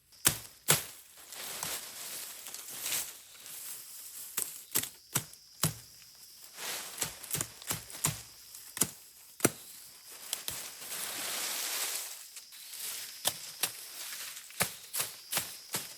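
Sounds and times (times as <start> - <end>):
sharp knocks and cracks: 0.2 - 1.0, 4.4 - 6.1, 7.0 - 9.7.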